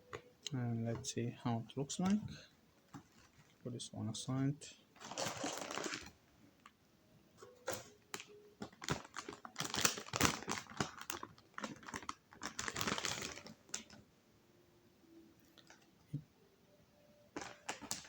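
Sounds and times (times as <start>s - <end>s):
packaging rustling and crinkling: 1.9s - 3.6s, 5.0s - 6.7s, 7.4s - 14.0s, 17.3s - 18.0s.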